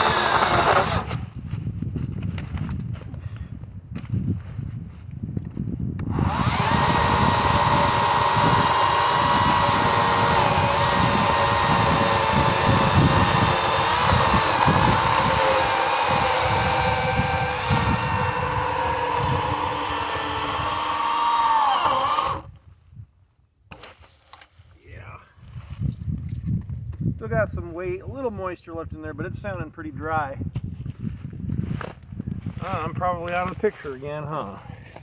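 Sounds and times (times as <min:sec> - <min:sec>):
chain rasping through wood: 0:00.0 - 0:01.2, 0:06.1 - 0:22.5
electric chainsaw motor whine: 0:00.0 - 0:01.2, 0:06.0 - 0:22.5.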